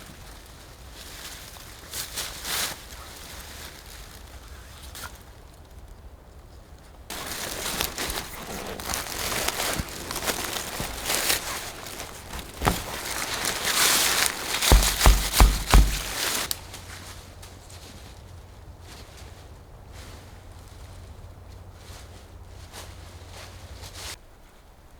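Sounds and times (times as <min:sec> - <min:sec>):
dull thumps: 0:07.1 - 0:16.5
rustling and crinkling: 0:07.1 - 0:24.2.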